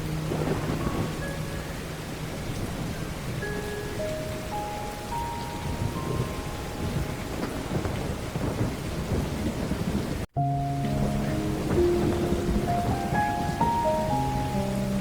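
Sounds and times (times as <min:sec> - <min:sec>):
soft sustained music notes: 0:00.0 - 0:08.7, 0:10.4 - 0:15.0
heavy rain: 0:00.0 - 0:15.0
thunder rumbling: 0:00.0 - 0:15.0.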